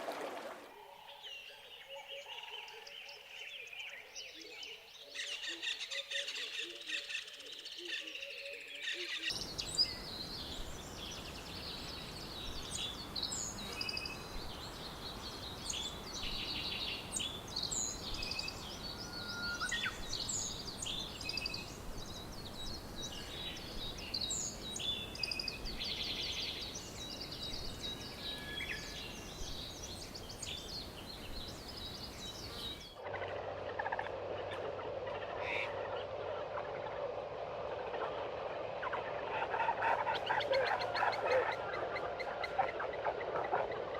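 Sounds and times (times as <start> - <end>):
birds chirping and calling: 4.7 - 37.0, 38.8 - 43.9
whistled bird notes: 8.1 - 33.4
steady background hiss: 9.3 - 40.9.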